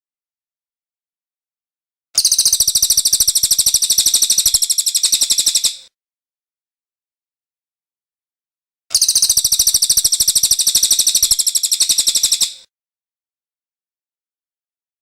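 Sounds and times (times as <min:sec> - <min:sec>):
bird high rapid trill: 0:02.2 - 0:05.9, 0:08.9 - 0:12.7.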